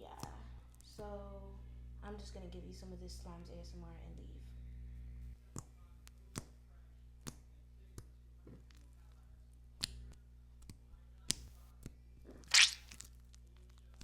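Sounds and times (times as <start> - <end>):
slime squeezed by hand: 12.5 - 13.0.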